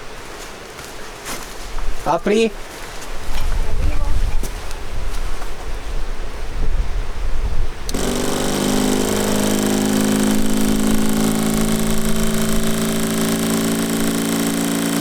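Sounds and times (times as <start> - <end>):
electric water pump humming: 7.9 - 15.0.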